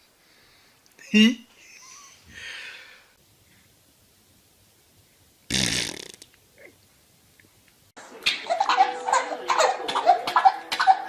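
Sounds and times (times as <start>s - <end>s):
baby farting: 5.5s - 6.7s.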